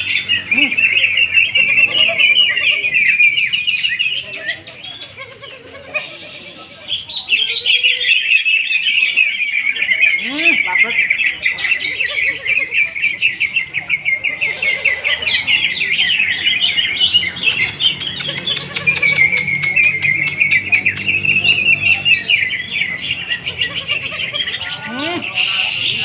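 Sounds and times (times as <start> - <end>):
birds singing high chirps and trills: 0.0 - 26.0.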